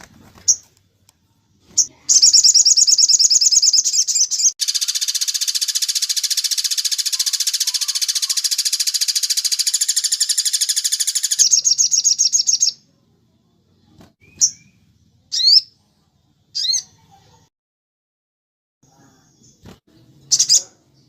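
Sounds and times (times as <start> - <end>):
short bird chirps: 1.8 - 12.8
songbird fast trill: 1.8 - 12.8.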